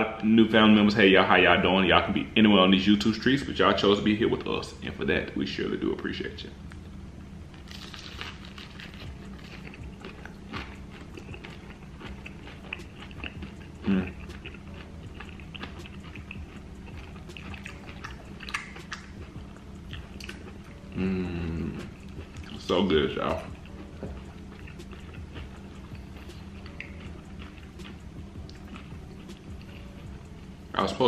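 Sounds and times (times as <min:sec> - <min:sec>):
biting and chewing crunchy food: 0:07.6 - 0:21.0, 0:21.7 - 0:30.3.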